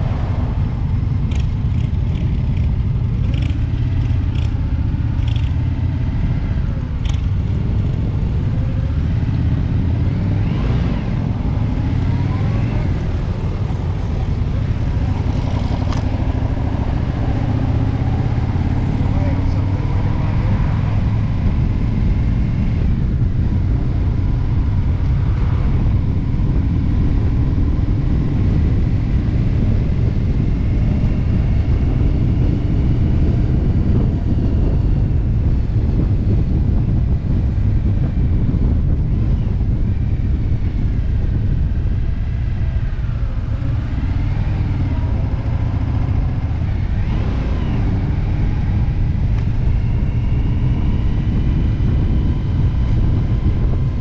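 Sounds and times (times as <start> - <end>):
motorcycle engine rumble: 0.0 - 54.0
wind rushing over microphone: 0.0 - 54.0.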